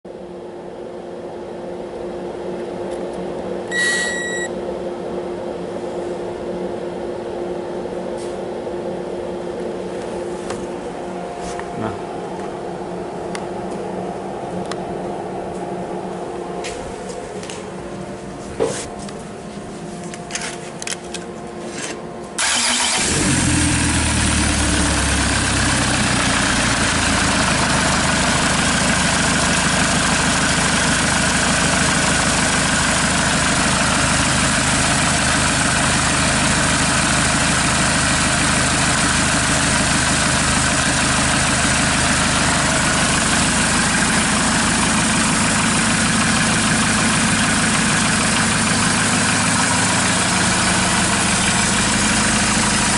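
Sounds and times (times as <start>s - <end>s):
diesel engine starting and idling: 22.4s - 52.9s.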